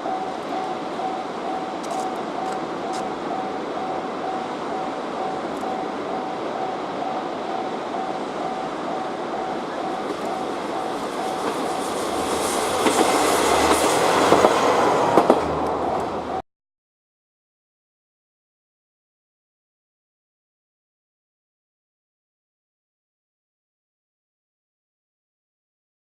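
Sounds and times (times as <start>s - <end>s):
repeating ringing tone: 0.0s - 12.3s
train passing: 0.0s - 16.4s
train wheels clicking: 0.0s - 16.4s.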